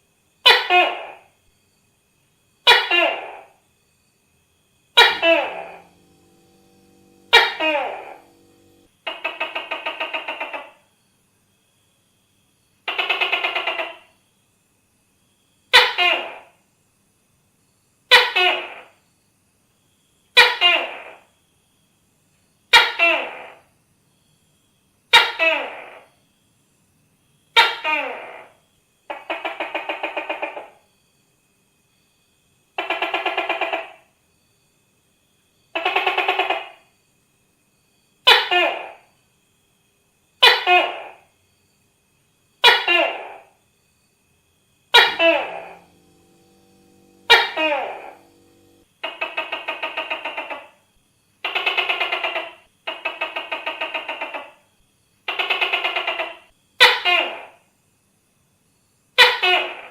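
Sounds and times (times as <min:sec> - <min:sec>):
gecko calling: 0:04.9 - 0:10.8, 0:42.6 - 0:43.6, 0:44.9 - 0:50.8, 0:51.4 - 0:54.6.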